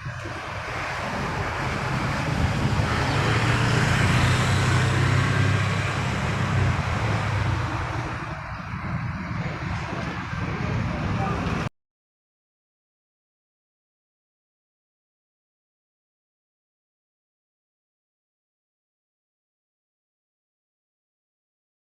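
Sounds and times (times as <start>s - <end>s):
diesel engine running: 0.0s - 11.7s.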